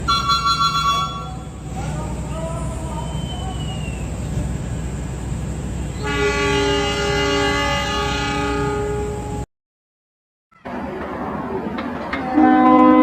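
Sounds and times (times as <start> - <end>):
locomotive horn chord: 0.0 - 1.6, 6.0 - 9.4, 12.2 - 13.0
idling engine rumble: 0.0 - 6.8.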